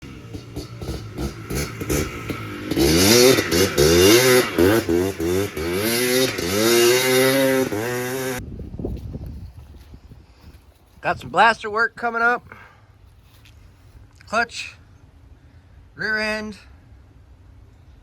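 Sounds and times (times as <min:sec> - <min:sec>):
two-stroke engine revving: 0:00.0 - 0:08.4.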